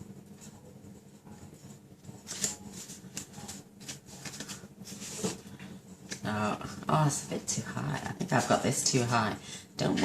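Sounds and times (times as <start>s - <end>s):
paper rustling: 1.4s - 6.3s.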